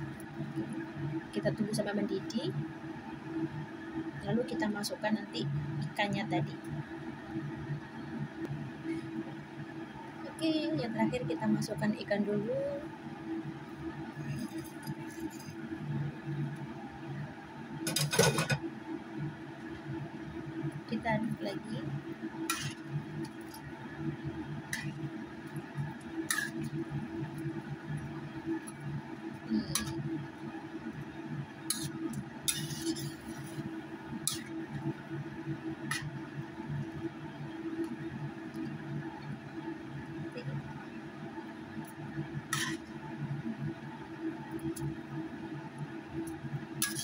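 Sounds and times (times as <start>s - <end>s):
steady low hum: 0.0s - 47.0s
kitchen clatter: 17.9s - 18.6s
spatula stirring food in pan: 22.2s - 39.0s, 41.8s - 45.0s, 46.7s - 47.0s.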